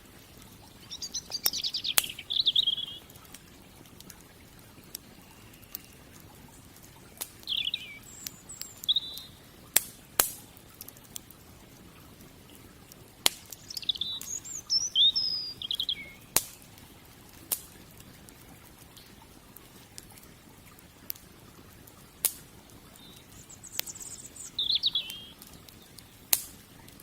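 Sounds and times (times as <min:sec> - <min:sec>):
wood fire crackling and popping: 0:00.0 - 0:27.0
small birds chirping: 0:00.3 - 0:09.9, 0:13.3 - 0:16.8, 0:22.7 - 0:27.0.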